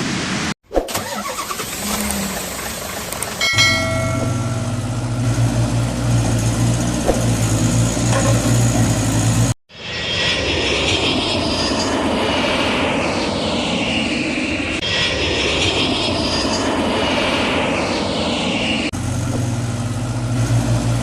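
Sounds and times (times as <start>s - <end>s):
engine starting and humming: 0.8s - 9.6s, 19.0s - 21.0s
different engine noise: 0.9s - 21.0s.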